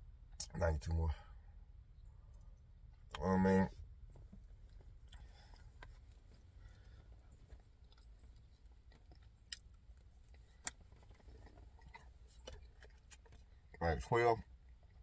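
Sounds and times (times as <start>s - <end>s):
low steady rumble: 0.0s - 15.0s
quiet chewing: 4.2s - 13.8s, 14.4s - 15.0s.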